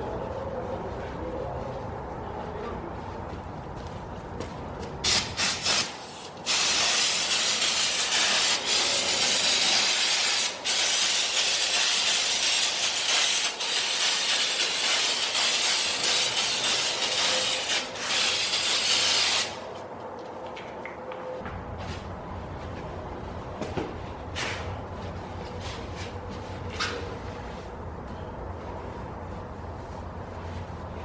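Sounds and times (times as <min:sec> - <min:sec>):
pressurised jet hissing on metal: 0:05.1 - 0:19.6.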